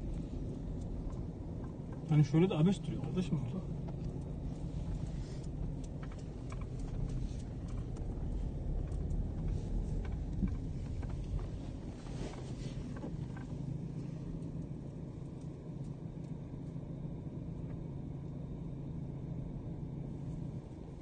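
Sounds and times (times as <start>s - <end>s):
light clicks and knocks: 0.0s - 14.7s
low vehicle rumble: 0.0s - 21.0s.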